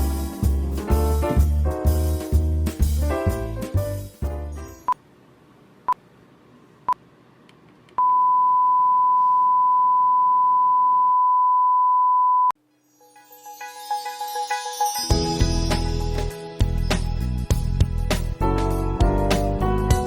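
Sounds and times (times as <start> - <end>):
music: 0.0 - 4.9, 12.6 - 20.0.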